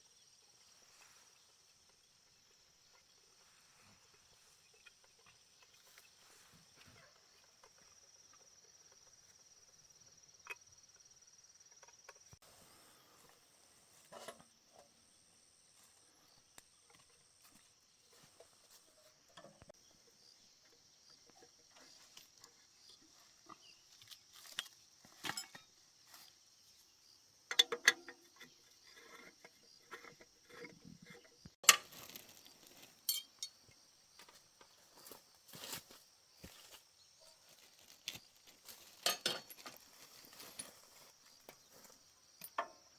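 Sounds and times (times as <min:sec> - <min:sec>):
hand tool clicks and knocks: 0:27.5 - 0:28.5.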